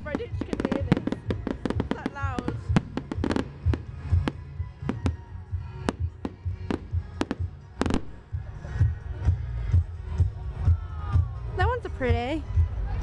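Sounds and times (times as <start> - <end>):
fireworks bangs and cracks: 0.0 - 5.2
music with bass thump: 0.0 - 13.0.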